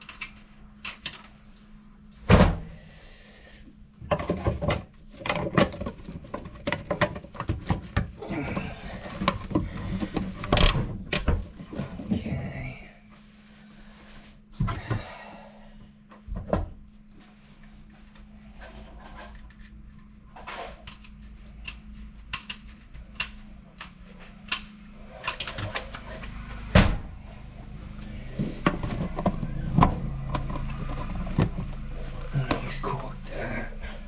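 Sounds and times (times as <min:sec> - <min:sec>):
clicks and knocks of handling: 0:00.0 - 0:01.4, 0:04.0 - 0:11.7, 0:20.4 - 0:26.3
steady low hum: 0:00.0 - 0:34.0.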